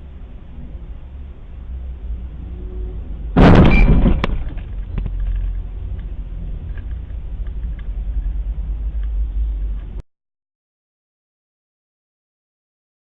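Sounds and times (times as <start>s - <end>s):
car engine and road noise: 0.0s - 10.0s
car collision crash: 3.4s - 4.8s.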